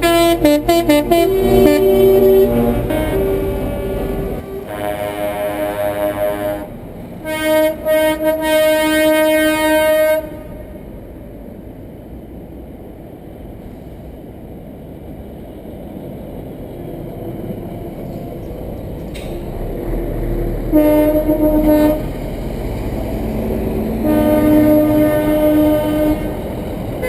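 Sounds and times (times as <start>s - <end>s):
truck air horn blowing: 0.0s - 10.7s, 20.7s - 22.2s, 24.0s - 26.4s
engine and road rumble: 0.0s - 27.0s.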